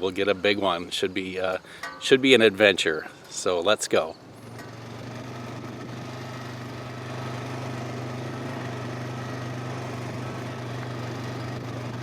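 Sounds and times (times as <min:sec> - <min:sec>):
atv engine running: 0:04.2 - 0:12.0.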